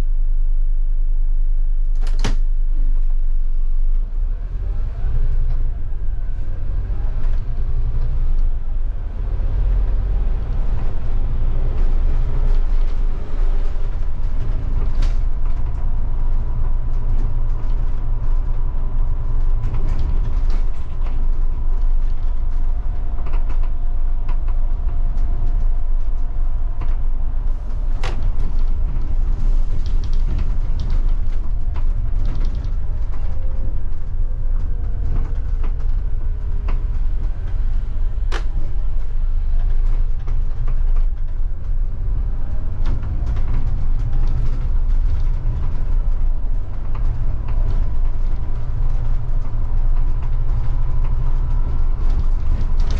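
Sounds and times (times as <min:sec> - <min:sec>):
bus diesel engine rumble: 0:00.0 - 0:52.9
body rattles and clicks: 0:10.5 - 0:52.9.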